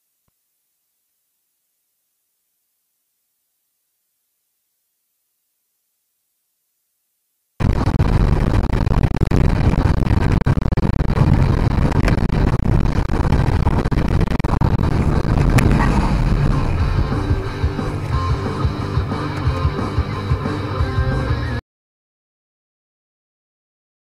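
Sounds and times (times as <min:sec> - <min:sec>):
vehicle rumble on road: 0:14.3 - 0:21.2
guitar music: 0:14.9 - 0:21.6
music: 0:15.8 - 0:21.6.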